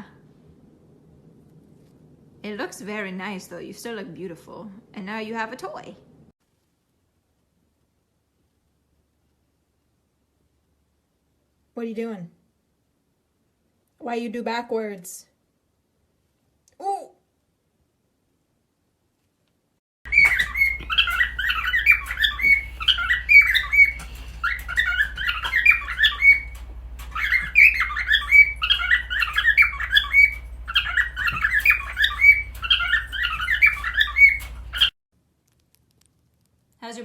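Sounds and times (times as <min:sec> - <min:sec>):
bird chattering and squawking: 0:20.1 - 0:34.9.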